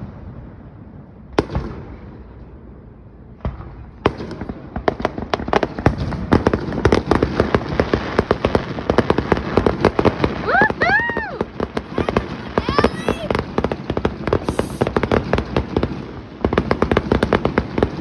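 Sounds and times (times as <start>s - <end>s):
firework bangs: 9.2s - 13.4s, 14.4s - 14.9s.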